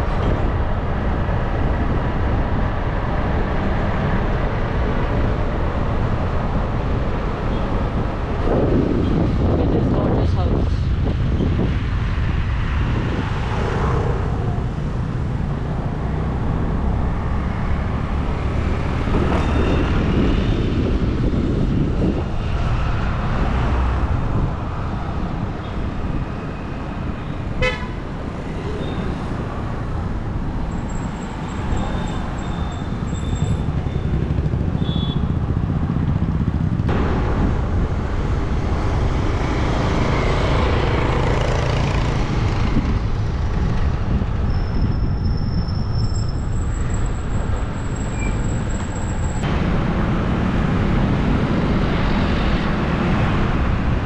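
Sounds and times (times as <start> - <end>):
low rumble of road traffic: 0.0 - 54.0
vehicle horn toots: 27.6 - 28.0, 34.8 - 35.4.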